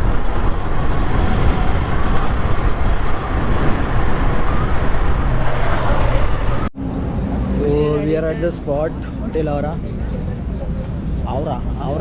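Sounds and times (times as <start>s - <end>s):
wind buffeting microphone: 0.0s - 7.5s.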